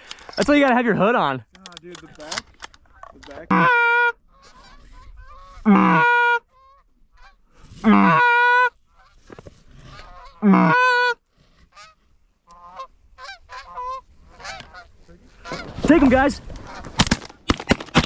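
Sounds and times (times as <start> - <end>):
goose honking: 3.5 - 9.1, 9.9 - 17.0.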